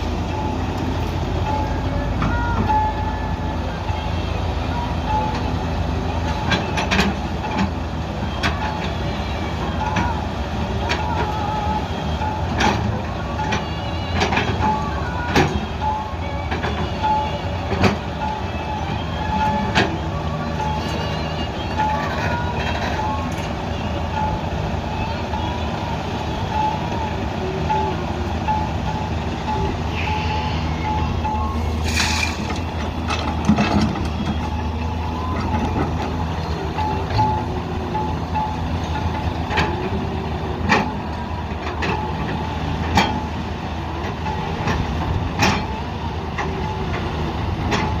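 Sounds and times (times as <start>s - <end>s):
diesel construction machinery running: 0.0s - 48.0s
reversing alarm beeping: 0.2s - 5.5s, 11.0s - 43.2s.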